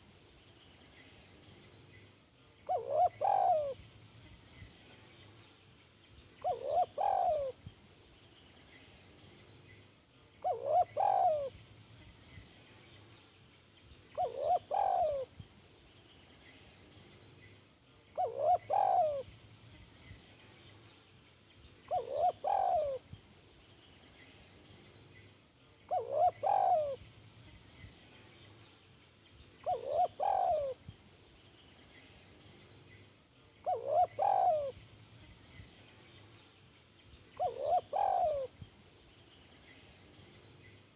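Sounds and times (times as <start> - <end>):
dove cooing: 2.6 - 3.8, 6.4 - 7.6, 10.4 - 11.6, 14.1 - 15.3, 18.1 - 19.3, 21.9 - 23.1, 25.9 - 27.0, 29.6 - 30.8, 33.6 - 34.8, 37.4 - 38.6.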